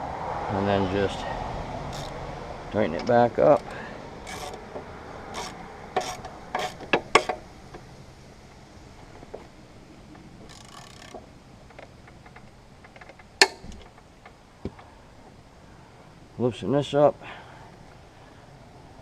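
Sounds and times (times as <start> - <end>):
socket wrench clicks and knocks: 1.9 - 2.2, 3.0 - 7.9.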